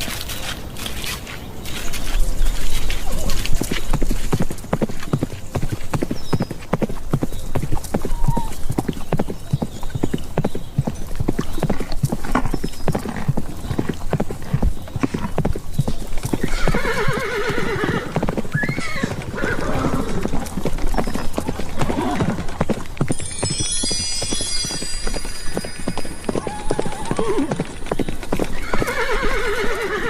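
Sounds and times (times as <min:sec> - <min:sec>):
galloping horse hoofbeats: 0:00.0 - 0:30.0
horse neighing: 0:16.4 - 0:20.3, 0:26.4 - 0:27.6, 0:28.6 - 0:30.0.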